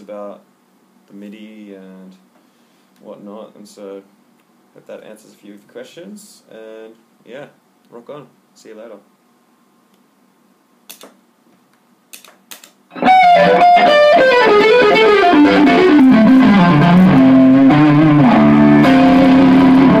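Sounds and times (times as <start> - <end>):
distorted electric guitar music: 12.9 - 20.0.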